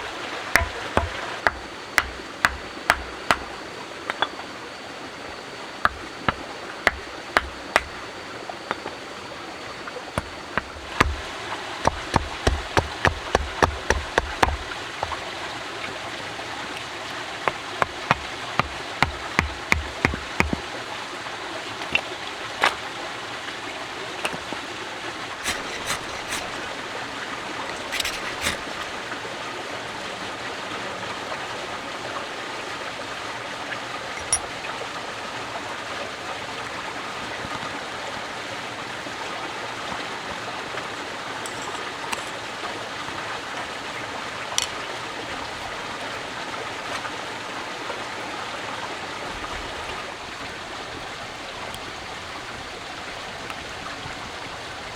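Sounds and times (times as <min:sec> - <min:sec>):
flowing water: 0:00.0 - 0:54.9
sharp clicks and knocks: 0:00.5 - 0:04.4, 0:05.9 - 0:08.1, 0:10.2 - 0:15.2, 0:17.5 - 0:20.6, 0:25.4 - 0:26.6, 0:27.7 - 0:28.9.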